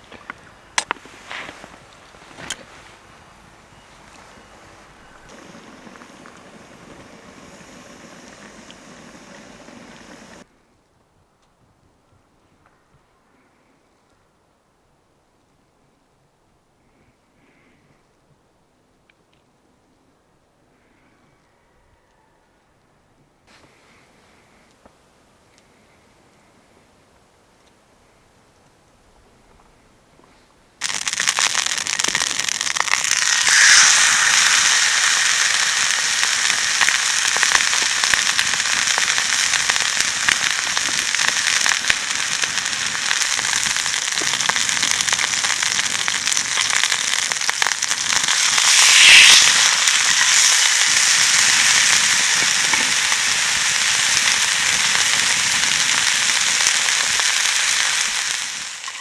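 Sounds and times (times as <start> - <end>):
food sizzling in a hot pan: 5.0 - 10.4, 30.8 - 59.0.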